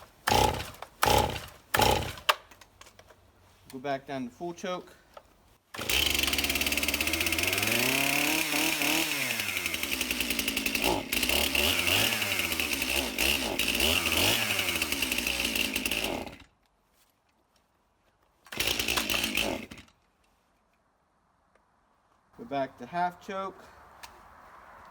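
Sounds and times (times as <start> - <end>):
chainsaw revving and stalling: 0.2 - 2.4, 5.7 - 16.5, 18.5 - 20.0.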